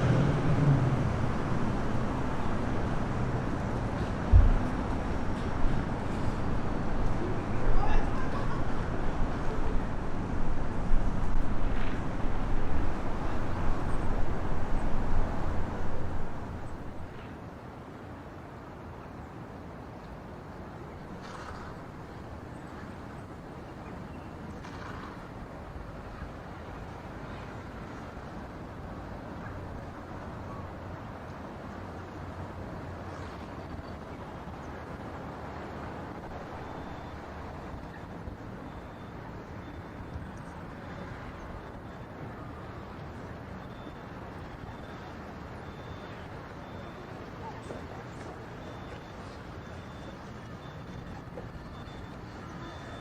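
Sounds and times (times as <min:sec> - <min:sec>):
wind buffeting microphone: 0:00.0 - 0:17.1.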